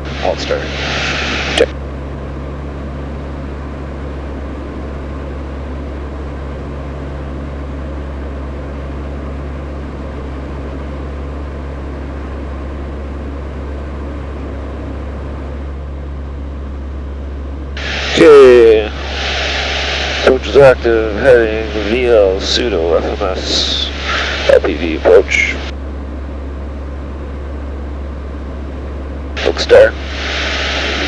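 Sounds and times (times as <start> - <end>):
airflow noise: 0.0 - 7.4, 17.8 - 31.0
turboprop cockpit drone: 0.0 - 31.0.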